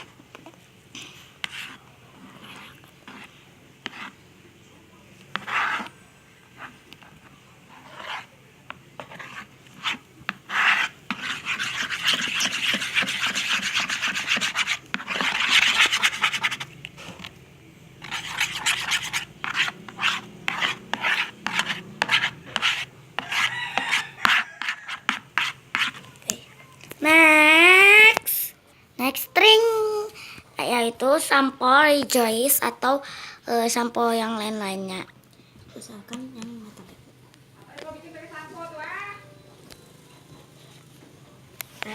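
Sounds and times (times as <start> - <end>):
utensil stirring slime in container: 0.0 - 4.3, 5.2 - 17.3, 18.0 - 26.4.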